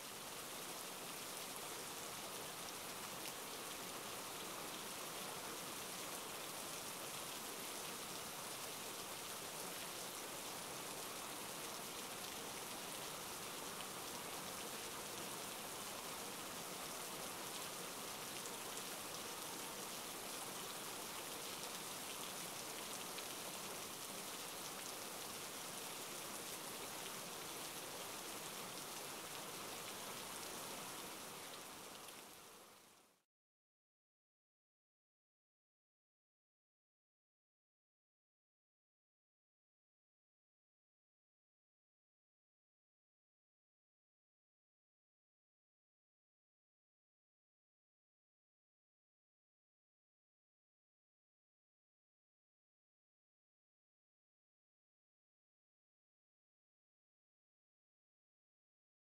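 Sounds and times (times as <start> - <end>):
steady rain: 0.0 - 33.2.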